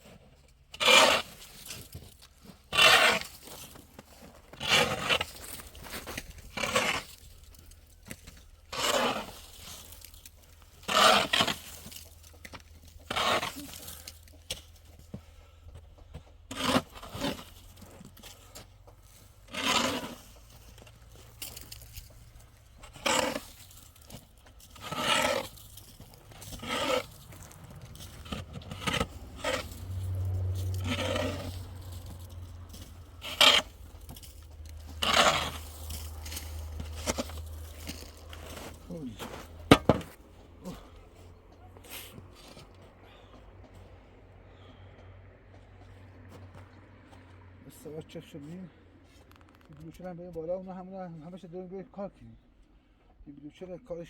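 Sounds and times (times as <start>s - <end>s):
metal shovel scraping and digging: 0.0s - 14.9s, 16.5s - 41.2s, 41.8s - 42.8s.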